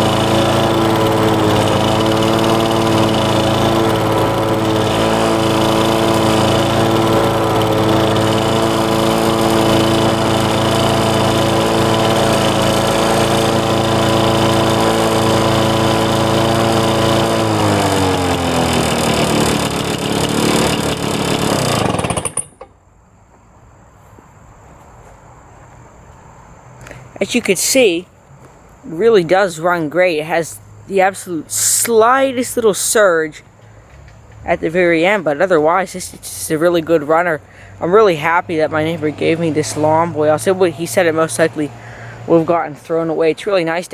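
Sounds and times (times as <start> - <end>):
two-stroke engine running: 0.0 - 22.7.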